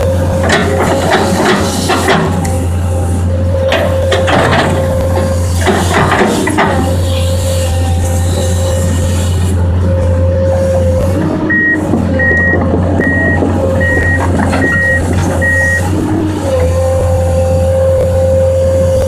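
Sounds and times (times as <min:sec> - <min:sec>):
diesel engine running: 0:00.0 - 0:19.0
travel alarm beeping: 0:11.5 - 0:15.9.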